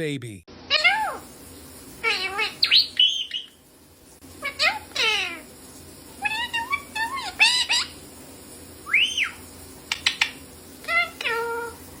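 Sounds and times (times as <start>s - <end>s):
parrot chirps and squawks: 0.7s - 1.3s, 2.0s - 3.6s, 4.4s - 5.5s, 6.2s - 8.0s, 8.8s - 11.8s.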